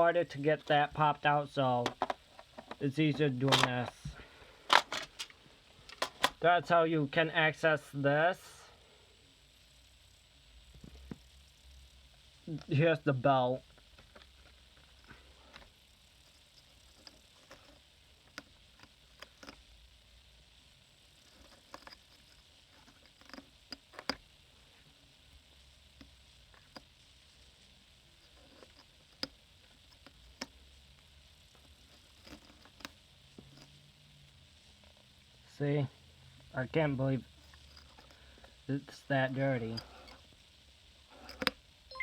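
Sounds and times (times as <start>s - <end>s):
plastic parts clicking and scratching: 1.8s - 6.4s, 13.7s - 19.7s, 21.2s - 24.3s, 28.2s - 30.6s, 31.5s - 33.8s, 37.4s - 38.6s, 41.2s - 41.6s.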